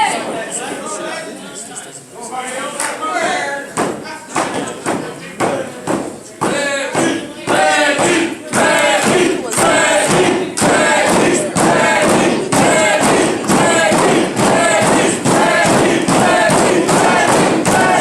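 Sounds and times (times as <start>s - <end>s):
rhythmic thuds: 3.7s - 18.0s
crowd chanting rhythmically: 6.4s - 18.0s.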